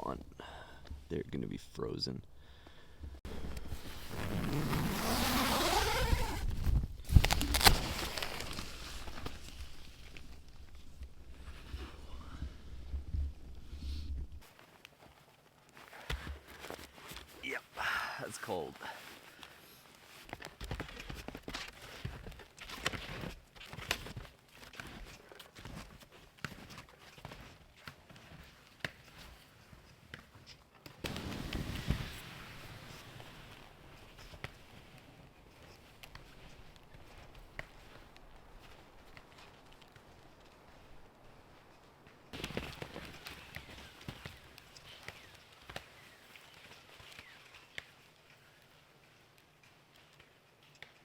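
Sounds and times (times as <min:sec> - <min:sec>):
gear rustling: 0:03.3 - 0:12.1
footsteps in snow: 0:03.3 - 0:12.2, 0:31.1 - 0:50.8.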